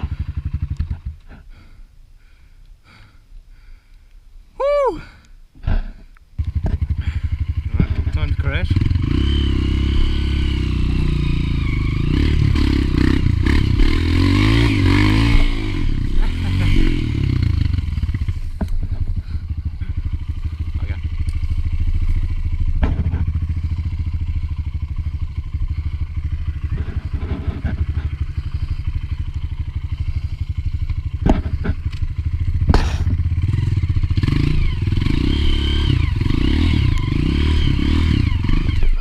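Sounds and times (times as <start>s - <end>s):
dirt bike engine running: 0.0s - 3.9s, 5.6s - 39.0s
sharp knocks and clatter: 6.5s - 6.9s, 22.7s - 23.5s, 31.2s - 33.2s.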